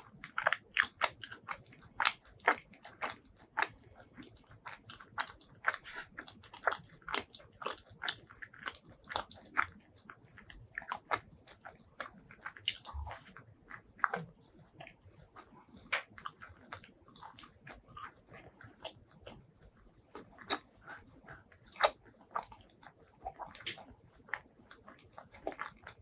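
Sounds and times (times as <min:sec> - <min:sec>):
person biting and chewing food: 0:00.1 - 0:19.4, 0:20.0 - 0:26.0.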